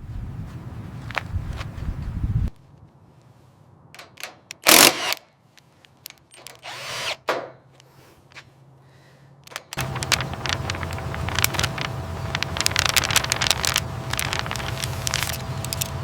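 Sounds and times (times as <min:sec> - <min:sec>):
power tool burst: 0:04.6 - 0:05.2, 0:06.4 - 0:07.3.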